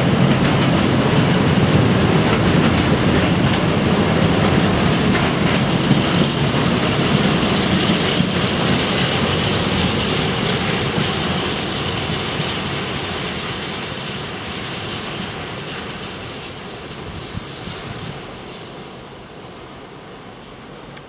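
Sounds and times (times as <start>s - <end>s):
freight train wheels rolling on rails: 0.0s - 21.0s.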